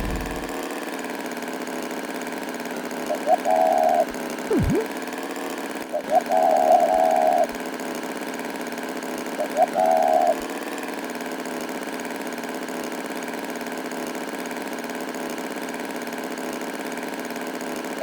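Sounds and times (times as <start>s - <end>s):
tractor engine idling: 0.0s - 0.5s.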